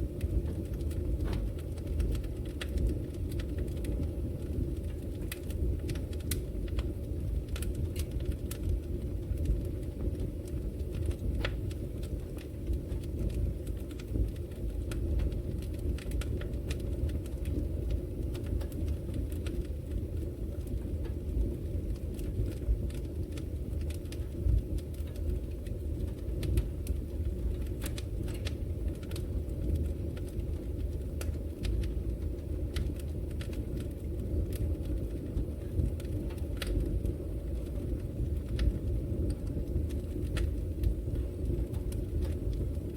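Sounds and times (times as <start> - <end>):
low rush of burning: 0.0 - 42.9
wood fire crackling: 0.0 - 42.9
small sharp pops and snaps: 9.4 - 20.0, 26.0 - 31.9.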